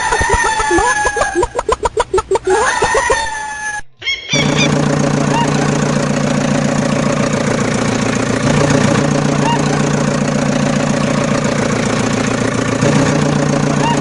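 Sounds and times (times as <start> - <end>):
rooster crowing: 0.0 - 1.4, 2.5 - 4.4
engine running: 0.0 - 3.4, 4.3 - 14.0.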